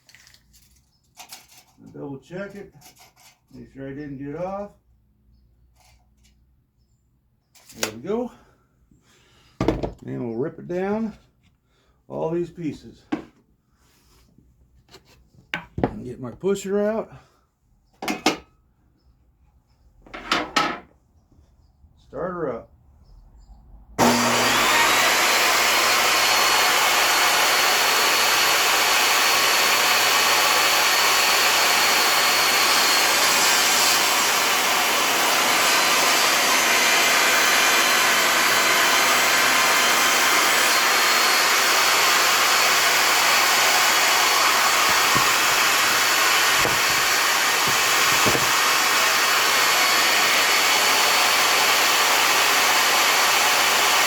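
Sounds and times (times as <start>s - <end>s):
table saw motor whining: 24.0s - 54.0s.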